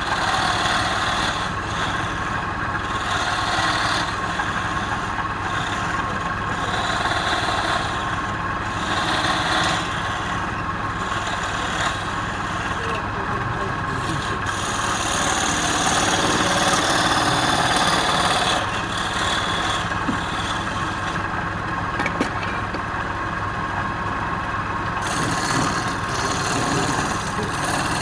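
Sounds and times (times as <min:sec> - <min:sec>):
tool scraping spinning wood: 0:00.0 - 0:28.0
wood lathe motor running: 0:00.0 - 0:28.0.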